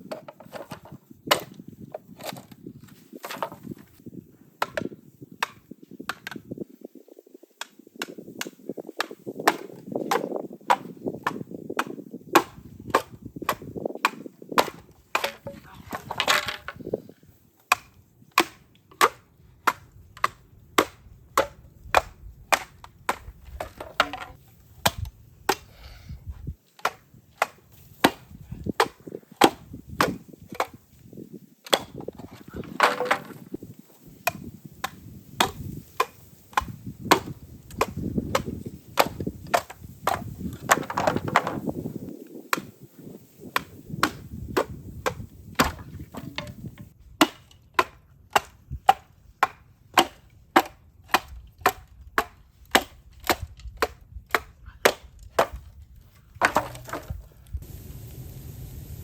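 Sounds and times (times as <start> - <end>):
blade chopping bamboo: 7.6 - 16.6, 17.7 - 25.7, 26.8 - 30.8, 31.6 - 32.0, 34.2 - 41.6, 42.4 - 42.7, 43.5 - 55.7
low rumble: 57.6 - 59.0.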